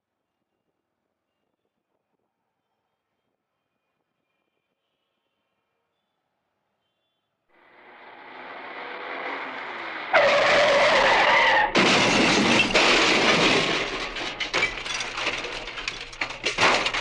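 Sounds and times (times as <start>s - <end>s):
loud crash: 7.7s - 17.0s
tyres screeching: 7.8s - 17.0s
debris clattering and tinkling: 8.3s - 17.0s
glass breaking: 9.3s - 17.0s.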